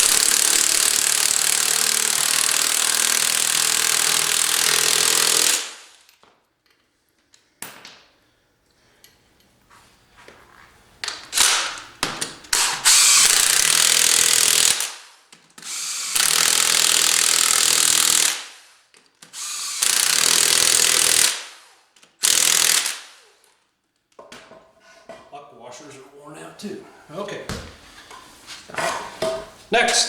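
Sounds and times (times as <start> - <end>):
handheld power tool bursts: 0.0 - 6.1, 11.1 - 23.5.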